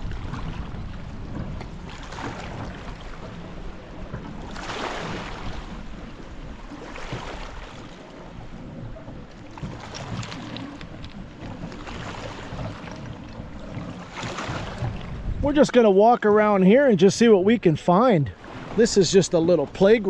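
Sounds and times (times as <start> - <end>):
wind rumbling on microphone: 0.0 - 15.9
waves washing against shore: 0.0 - 20.0.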